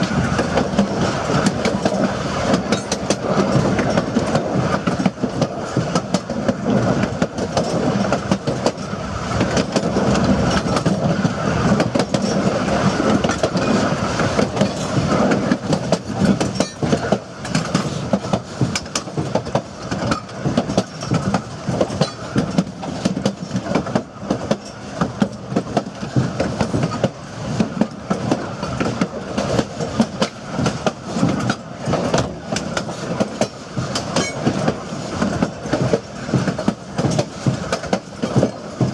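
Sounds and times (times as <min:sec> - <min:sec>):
train car rumbling: 0:00.0 - 0:38.9
wheels clicking over rail joints: 0:00.0 - 0:38.9.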